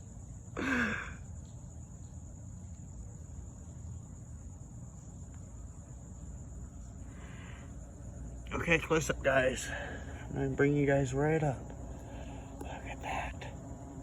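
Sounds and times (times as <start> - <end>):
high-pitched insect trill: 0.0 - 14.0
honeybees humming: 6.0 - 14.0.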